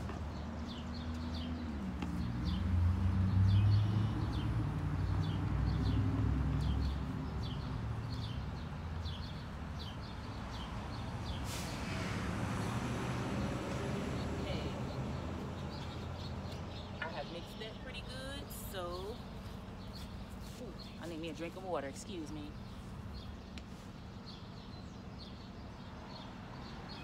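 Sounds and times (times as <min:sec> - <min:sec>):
small birds chirping: 0:00.0 - 0:12.0, 0:13.3 - 0:27.0
passing vehicle rumble: 0:00.0 - 0:19.9.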